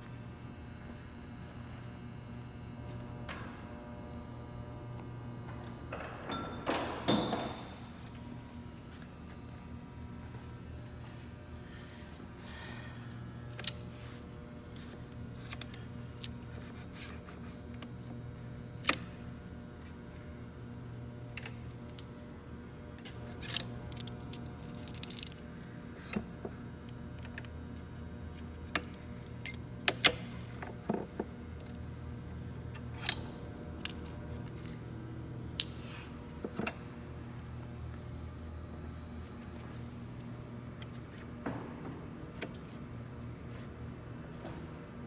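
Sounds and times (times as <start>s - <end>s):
electrical hum: 0.0s - 45.0s
metal parts clinking: 23.4s - 25.4s.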